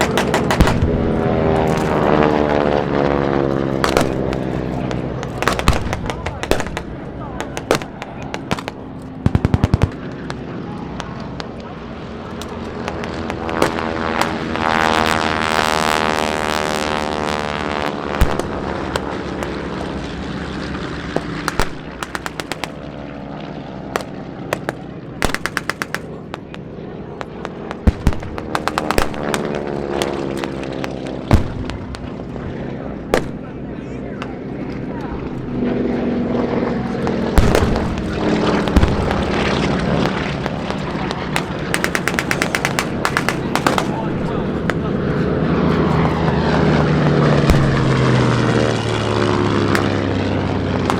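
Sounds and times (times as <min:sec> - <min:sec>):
simulated gunfire pops: 0:00.0 - 0:01.0, 0:03.8 - 0:10.4, 0:12.4 - 0:14.5, 0:18.2 - 0:19.6, 0:21.2 - 0:22.9, 0:24.0 - 0:26.6, 0:27.2 - 0:32.1, 0:33.2 - 0:33.4, 0:37.4 - 0:39.6, 0:40.4 - 0:44.0, 0:47.5 - 0:47.8, 0:49.7 - 0:50.1
loud sharp bangs: 0:00.0 - 0:34.6, 0:36.6 - 0:50.9
propeller plane engine drone: 0:00.0 - 0:50.9
sharp bang: 0:37.4 - 0:44.9.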